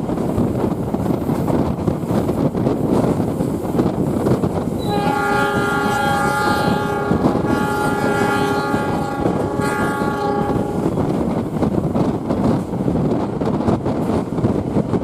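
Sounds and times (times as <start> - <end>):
train rumbling on track: 0.0 - 15.0
train horn blasts: 4.8 - 11.3.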